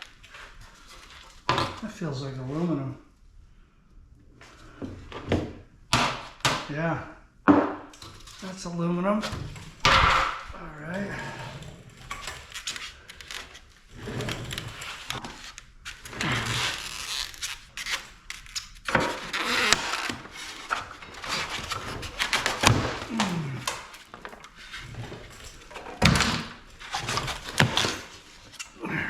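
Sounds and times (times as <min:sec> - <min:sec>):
hand tools scraping sheet metal: 0:18.9 - 0:28.8.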